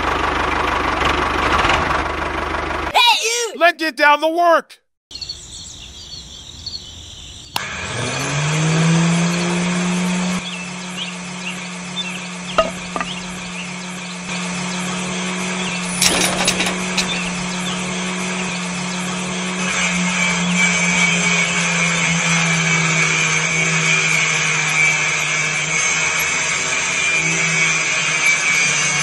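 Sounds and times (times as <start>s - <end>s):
small electric saw motor whining: 14.4s - 29.0s.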